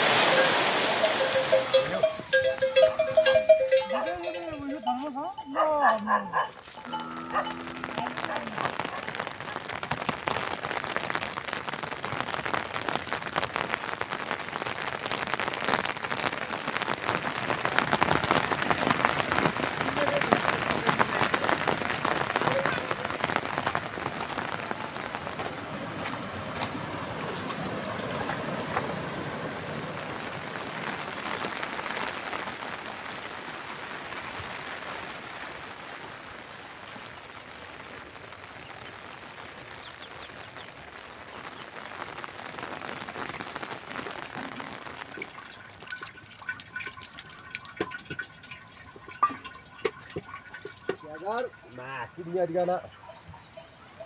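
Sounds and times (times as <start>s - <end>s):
heavy rain hissing: 0.0s - 5.2s, 6.7s - 45.8s, 51.0s - 53.5s
water drips and taps: 0.0s - 5.2s, 5.8s - 10.4s, 16.9s - 29.2s, 44.4s - 54.0s.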